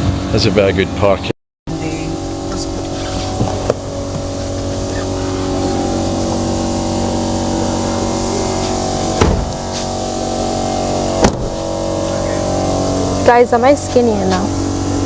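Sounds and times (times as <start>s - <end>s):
steady hum inside car: 1.7s - 15.0s
sharp knocks: 9.2s - 9.6s, 11.2s - 11.6s.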